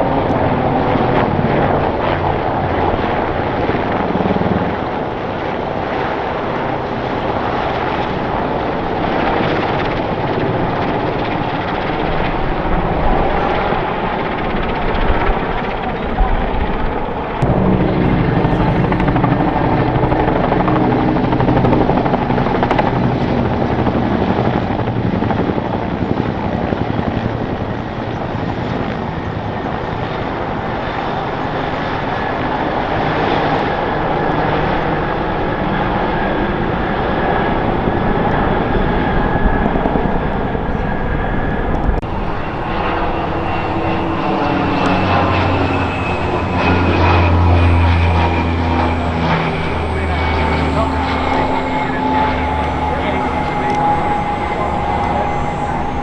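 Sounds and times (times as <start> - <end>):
helicopter rotor and turbine noise: 0.0 - 56.0
steady whining tones: 6.3 - 24.9, 34.0 - 56.0.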